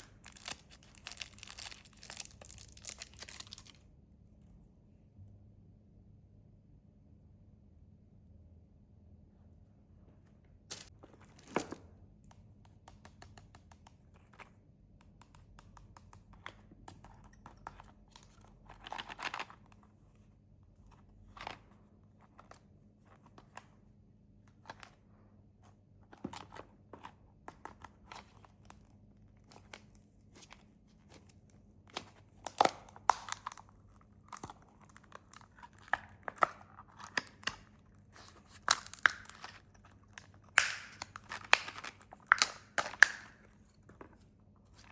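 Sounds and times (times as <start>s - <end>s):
wrappers crinkling and tearing: 0.0s - 3.8s, 10.7s - 11.7s, 38.2s - 43.4s.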